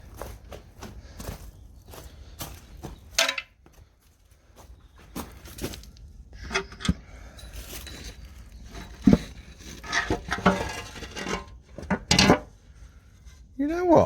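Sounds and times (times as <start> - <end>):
metal parts and tools clinking: 3.2 - 3.5, 6.4 - 12.5.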